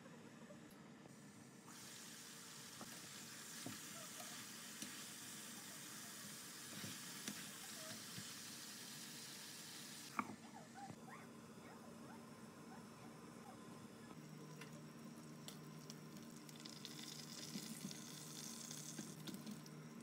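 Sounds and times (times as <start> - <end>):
chicken sizzling in oil: 1.7 - 10.1, 15.6 - 20.0.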